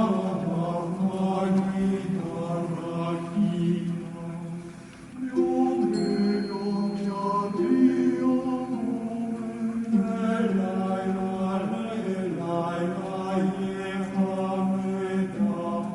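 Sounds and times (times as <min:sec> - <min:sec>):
high ringing tone: 0:05.2 - 0:09.0.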